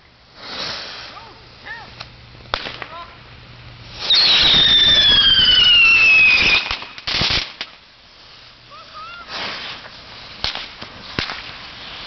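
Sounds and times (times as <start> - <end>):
firework crack: 0.0 - 12.0
firework bangs and pops: 0.3 - 1.2, 1.9 - 3.1, 3.9 - 7.9, 9.2 - 12.0
whistling firework: 0.4 - 1.2, 3.9 - 7.8, 9.0 - 12.0.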